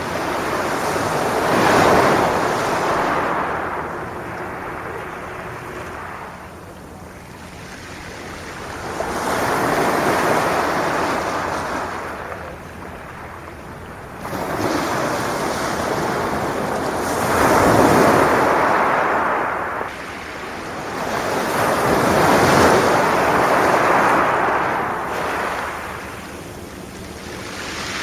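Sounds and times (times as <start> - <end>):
sea waves breaking on shingle: 0.0 - 6.2, 14.2 - 28.0.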